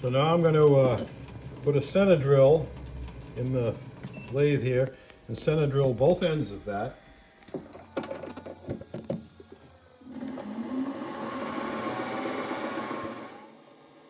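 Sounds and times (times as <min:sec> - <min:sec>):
metal lathe running: 0:10.0 - 0:13.6.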